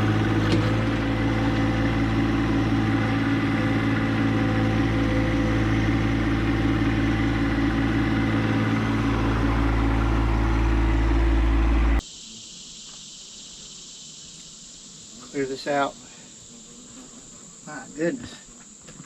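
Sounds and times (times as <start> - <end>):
tractor diesel engine running: 0.0 - 12.0
high insect buzz: 0.0 - 19.0.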